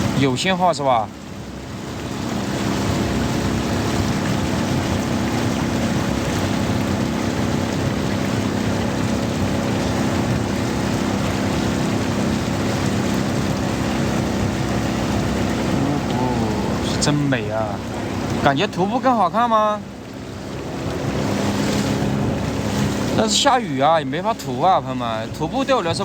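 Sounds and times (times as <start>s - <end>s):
hiss of rain and water: 0.0s - 26.0s
small outboard engine running: 0.0s - 26.0s.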